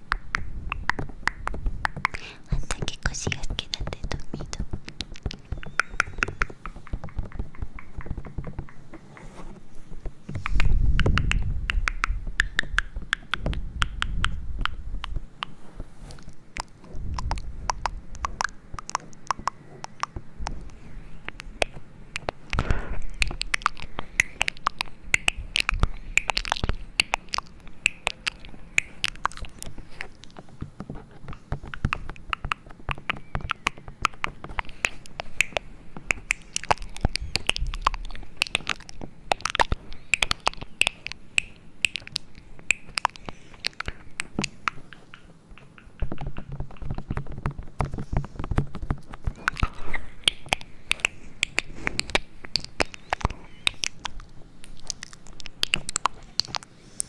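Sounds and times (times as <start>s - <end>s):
dense irregular clicks and taps: 0.0s - 9.2s, 16.2s - 41.2s, 41.9s - 56.7s
faint low rumble: 0.0s - 57.0s.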